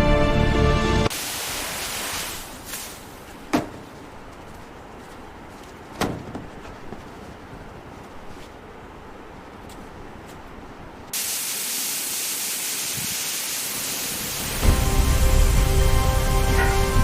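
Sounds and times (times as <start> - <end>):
music: 0.0 - 1.1, 14.4 - 17.0
faint steady hiss: 1.1 - 5.9.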